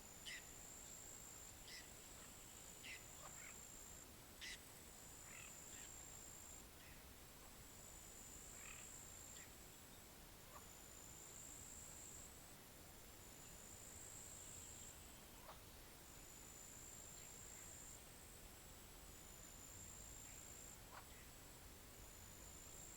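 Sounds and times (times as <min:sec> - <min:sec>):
frog croaks: 0:08.5 - 0:09.0.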